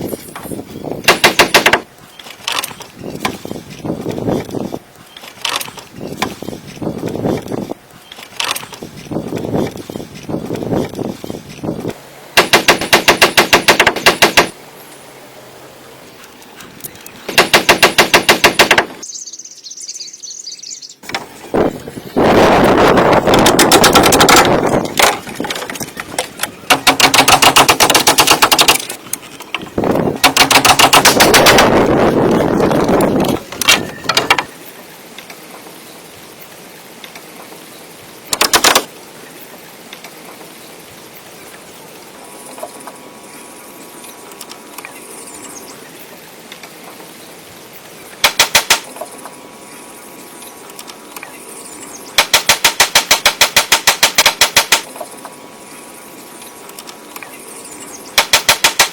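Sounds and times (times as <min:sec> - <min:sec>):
rapid mechanical hammering: 0:01.0 - 0:04.6, 0:11.8 - 0:14.6, 0:17.2 - 0:19.0, 0:22.9 - 0:34.5, 0:38.3 - 0:38.9, 0:48.2 - 0:49.0, 0:52.1 - 0:55.1, 0:58.1 - 0:58.9.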